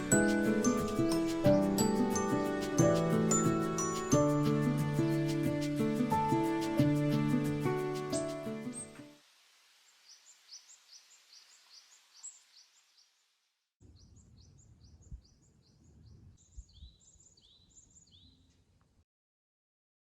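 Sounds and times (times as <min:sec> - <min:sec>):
songbirds chirping: 0:09.9 - 0:18.8.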